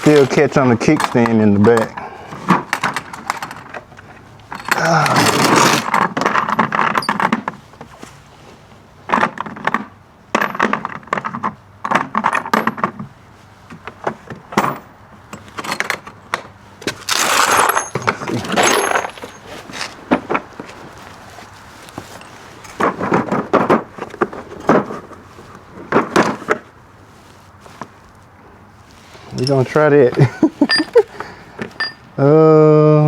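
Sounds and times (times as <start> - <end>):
metal tools clinking and scraping: 0.0 - 7.4, 14.6 - 25.2, 29.0 - 32.2.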